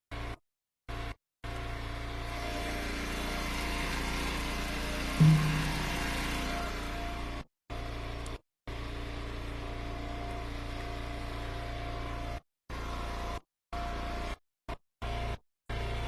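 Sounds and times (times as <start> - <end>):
wood splitter engine running: 2.2 - 7.3.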